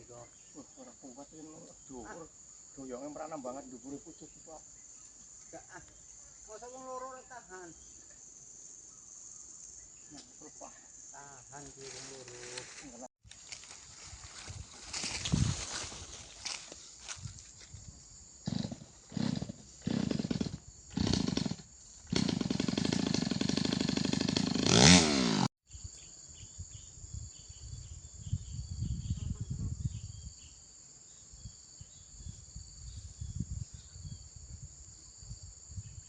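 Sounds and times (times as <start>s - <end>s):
insects buzzing: 0.0s - 36.0s
chainsaw revving: 18.4s - 25.5s.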